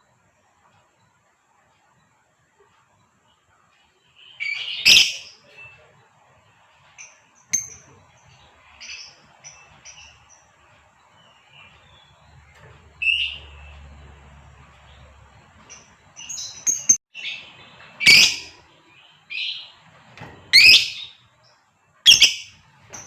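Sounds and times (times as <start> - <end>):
lovebird chirping: 4.1 - 5.8, 7.0 - 13.9, 14.8 - 19.8, 20.5 - 21.2, 22.1 - 23.0.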